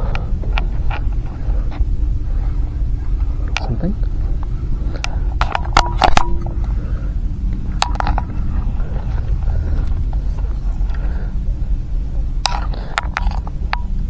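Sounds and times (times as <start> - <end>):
wind on microphone: 0.0 - 14.0
sharp clicks and knocks: 3.2 - 6.8, 7.5 - 11.2, 12.4 - 14.0.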